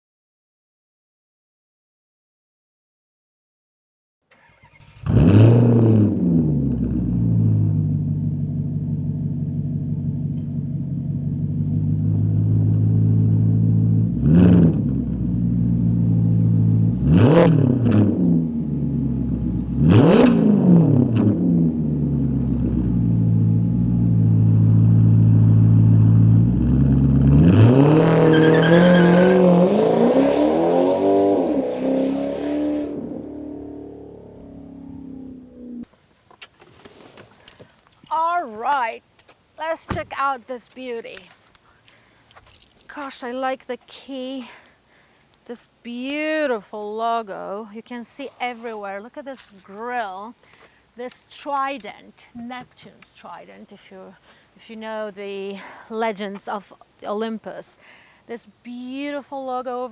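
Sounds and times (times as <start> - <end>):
car engine revving and idling: 4.3 - 35.9.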